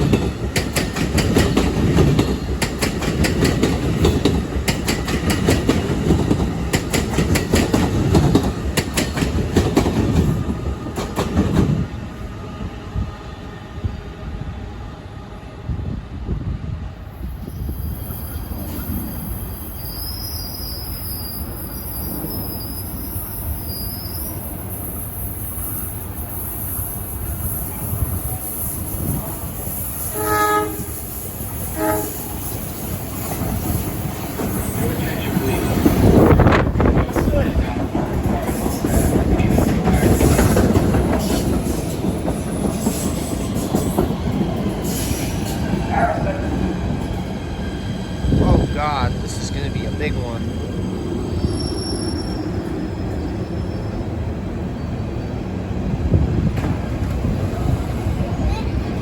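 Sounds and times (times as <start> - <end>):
train rumbling past: 0.0 - 59.0
high wavering squeal: 17.4 - 24.6
high wheel squeals: 17.4 - 29.0, 51.2 - 54.2.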